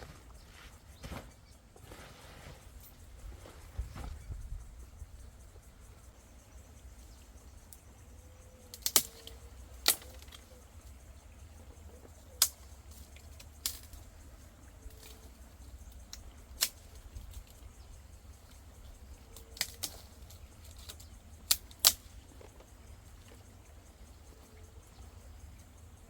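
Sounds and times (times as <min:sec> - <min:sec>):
sharp clicks: 0:08.7 - 0:10.4, 0:20.8 - 0:22.1.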